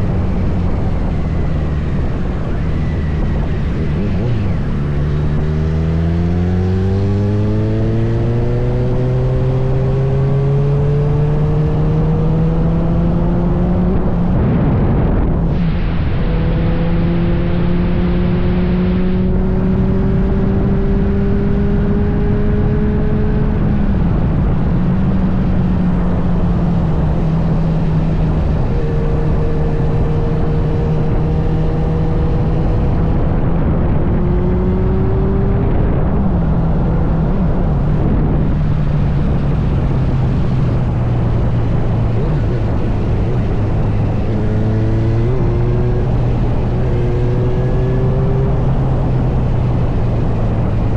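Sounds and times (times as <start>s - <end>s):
wind and road rush: 0.0s - 50.9s.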